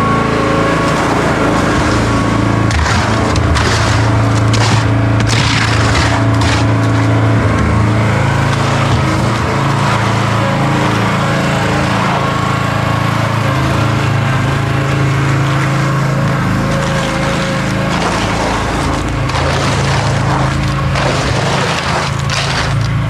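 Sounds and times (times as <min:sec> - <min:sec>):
machine engine running: 0:00.0 - 0:23.0
material crunching: 0:00.7 - 0:10.2, 0:16.6 - 0:23.0.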